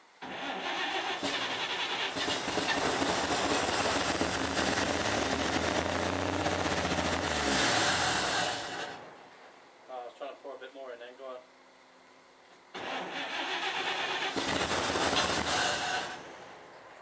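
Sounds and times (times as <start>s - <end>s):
engine cranking on starter: 0.2s - 9.0s, 12.8s - 16.4s.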